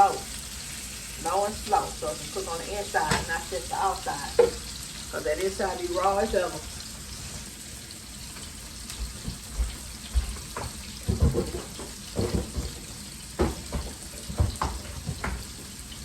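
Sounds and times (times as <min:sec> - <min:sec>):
dishes and utensils clattering: 0:09.2 - 0:15.7.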